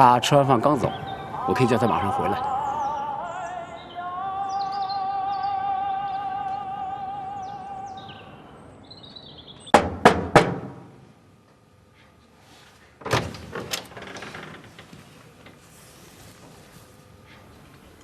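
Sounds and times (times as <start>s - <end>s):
sharp knocks: 9.7s - 10.9s.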